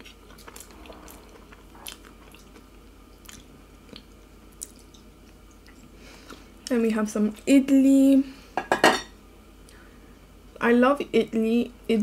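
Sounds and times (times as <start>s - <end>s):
close chewing: 0.0s - 5.0s.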